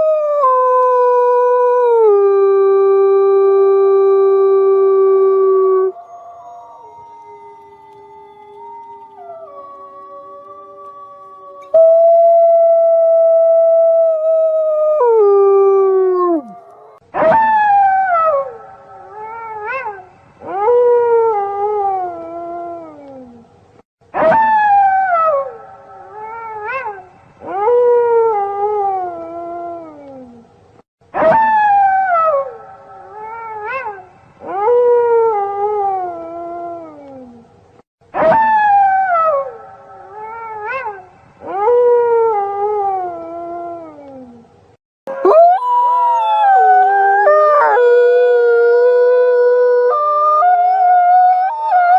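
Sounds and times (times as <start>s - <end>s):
wolf howling: 0.0s - 17.0s, 45.1s - 51.9s.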